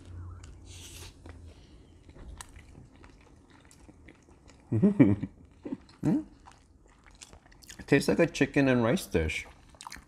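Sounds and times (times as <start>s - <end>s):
quiet chewing mouth sounds: 0.0s - 4.7s, 5.3s - 7.9s, 9.4s - 10.0s.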